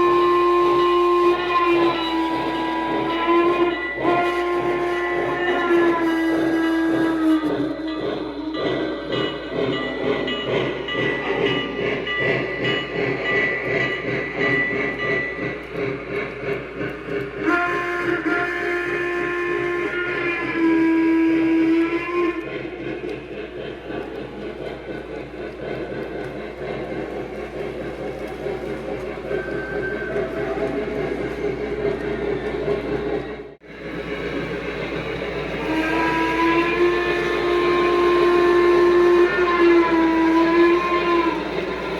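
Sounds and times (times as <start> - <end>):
steam whistle: 0.0 - 10.1, 17.1 - 23.1, 28.6 - 31.2, 35.3 - 41.9
model steam locomotive chuffing: 0.0 - 41.9.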